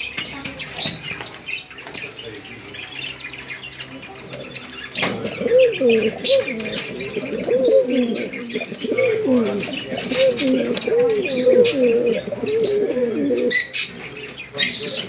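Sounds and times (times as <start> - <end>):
small birds chirping: 0.0 - 15.0
pigeons cooing: 1.9 - 15.0.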